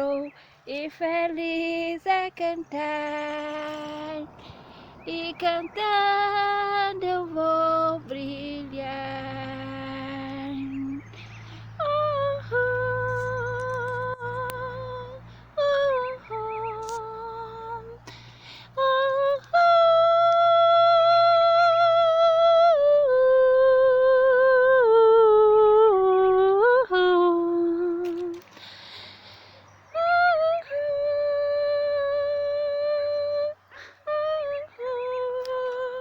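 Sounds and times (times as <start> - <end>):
woman humming a melody: 11.8 - 18.1, 18.8 - 28.5, 30.0 - 36.0.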